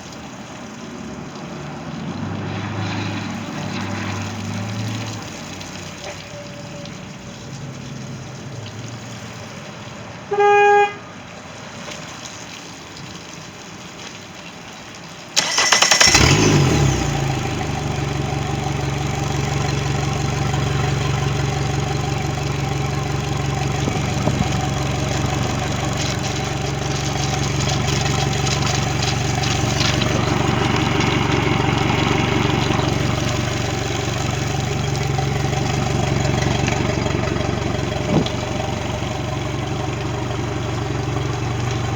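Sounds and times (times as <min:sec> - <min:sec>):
warning horn beep: 0:10.3 - 0:11.0
outboard engine idling: 0:15.3 - 0:41.9
starter cranking: 0:15.4 - 0:41.9.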